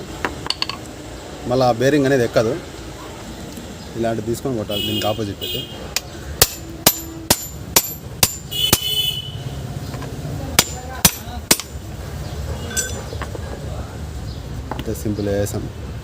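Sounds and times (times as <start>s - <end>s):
hammer strikes on metal: 5.9s - 9.0s, 10.6s - 11.8s.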